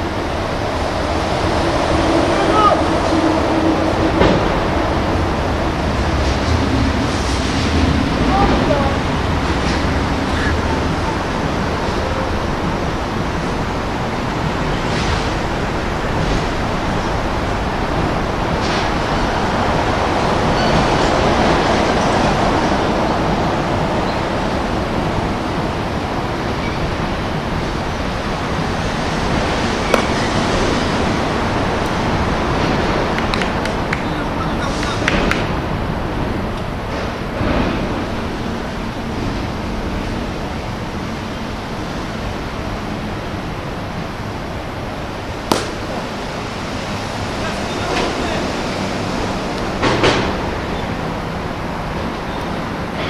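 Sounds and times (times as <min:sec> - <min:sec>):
loud rushing noise: 0:00.0 - 0:53.0
sharp crack: 0:45.4 - 0:46.0.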